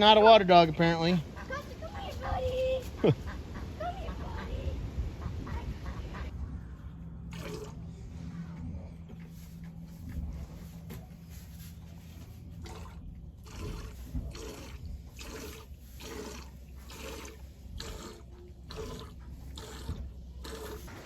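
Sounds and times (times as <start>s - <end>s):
water splashing and sloshing: 7.2s - 8.3s, 9.0s - 21.0s.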